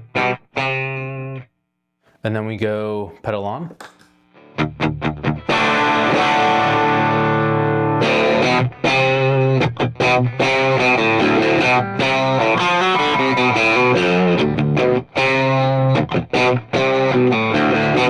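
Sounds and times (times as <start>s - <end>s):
overdriven electric guitar chords: 4.3s - 18.0s.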